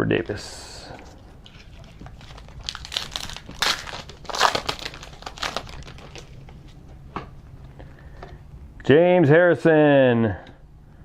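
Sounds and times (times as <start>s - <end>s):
card pack wrapper crinkling: 1.4s - 6.8s.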